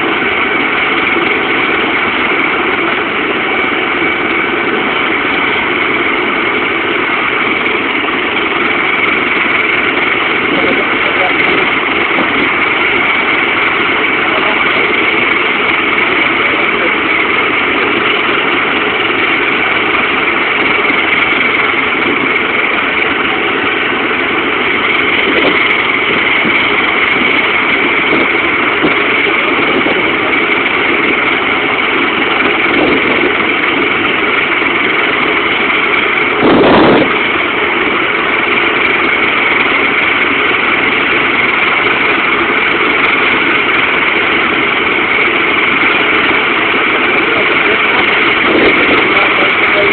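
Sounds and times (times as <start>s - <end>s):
helicopter turbine whine: 0.0s - 49.9s.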